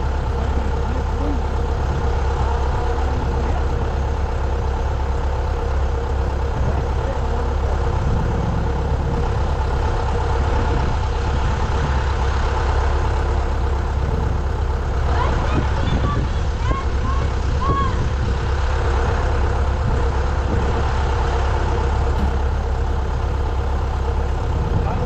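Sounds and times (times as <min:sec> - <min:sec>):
heavy engine humming: 0:00.0 - 0:25.0.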